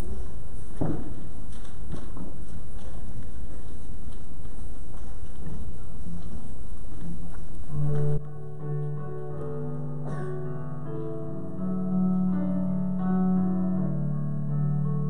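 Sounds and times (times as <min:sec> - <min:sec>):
keyboard playing slow hymn chords: 0:07.7 - 0:15.0.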